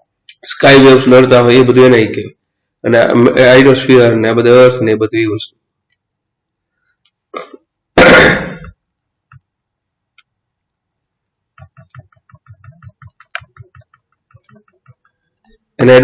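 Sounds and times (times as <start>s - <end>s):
person clearing throat: 7.4s - 8.8s.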